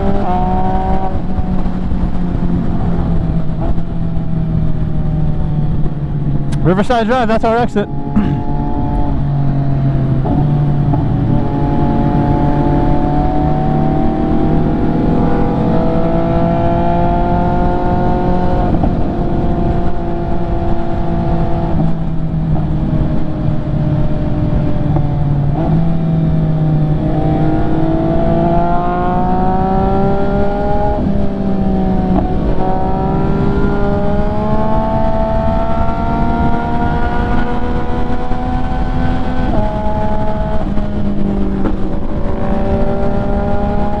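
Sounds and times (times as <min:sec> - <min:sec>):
motorcycle engine through gears: 0:24.9 - 0:44.0.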